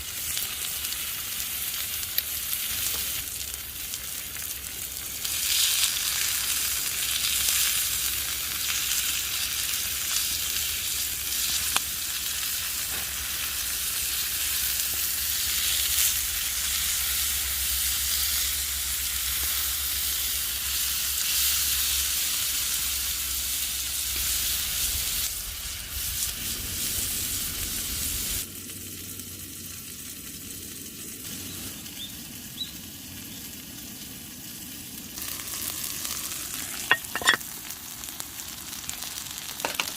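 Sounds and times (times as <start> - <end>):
food sizzling with crackling: 0.0 - 39.9.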